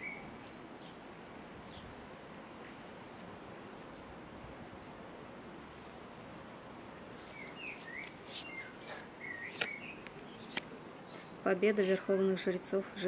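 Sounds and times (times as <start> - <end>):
small bird chirping: 6.8 - 12.1.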